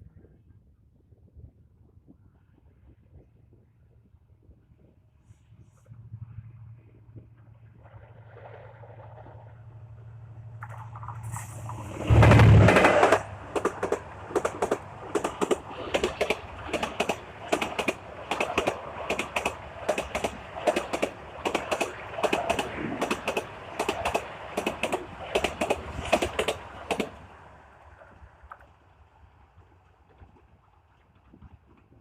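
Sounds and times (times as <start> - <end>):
low train rumble: 0.0 - 32.0
train wheels clacking over rails: 10.6 - 27.3.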